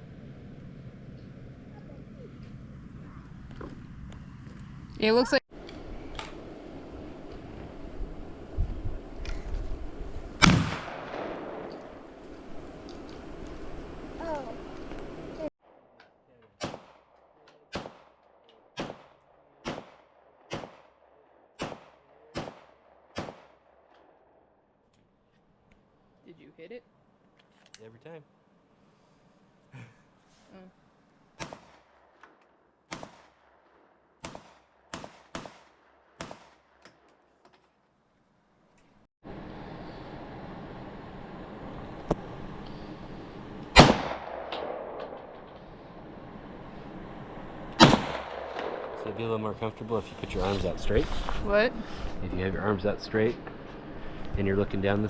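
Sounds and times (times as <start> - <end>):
gunshots with echo: 10.4 - 12.0, 16.6 - 23.6, 43.8 - 45.6, 47.8 - 49.8.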